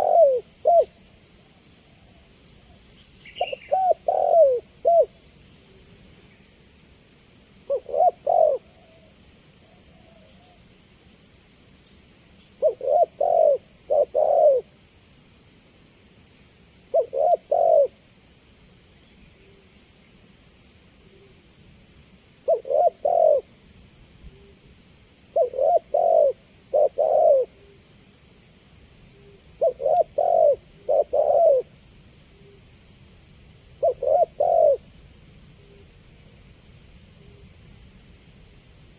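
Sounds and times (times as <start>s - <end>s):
dove cooing: 0.0s - 1.0s, 3.3s - 5.1s, 7.7s - 9.0s, 12.6s - 14.7s, 16.9s - 18.0s, 22.5s - 23.5s, 25.3s - 27.8s, 29.6s - 31.7s, 33.8s - 34.8s
steady high hiss: 0.0s - 38.9s.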